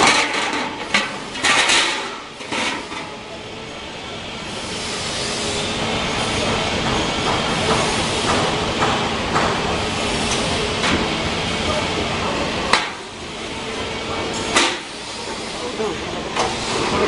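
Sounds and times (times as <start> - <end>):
industrial machinery hiss and hum: 0.0 - 17.0
sharp clicks and knocks: 6.8 - 11.0.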